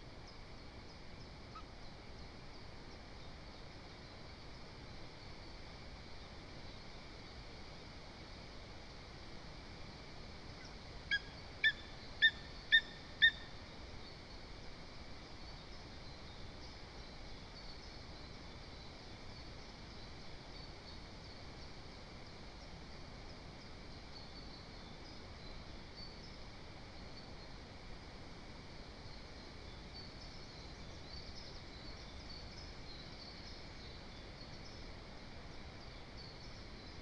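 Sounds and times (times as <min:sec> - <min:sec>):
distant songbird chirps: 0:10.6 - 0:14.4.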